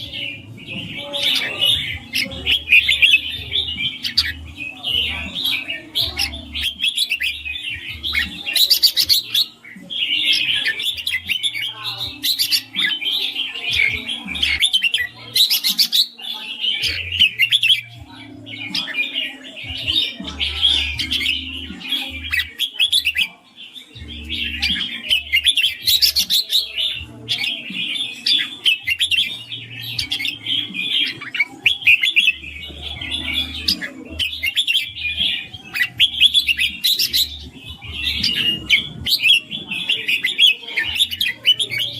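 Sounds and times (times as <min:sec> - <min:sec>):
bird chirping song: 0:00.0 - 0:41.9.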